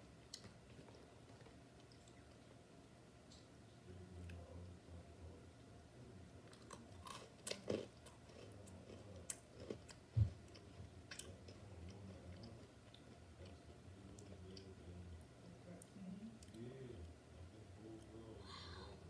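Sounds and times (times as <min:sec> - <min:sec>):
person chewing crunchy snack: 0:06.6 - 0:12.6.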